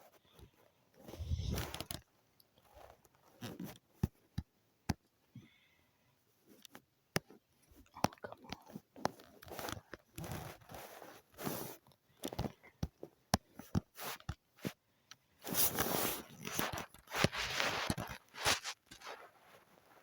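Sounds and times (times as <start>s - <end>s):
rustling and rubbing: 0.5s - 4.3s, 9.0s - 12.6s, 13.6s - 14.8s, 15.4s - 20.0s.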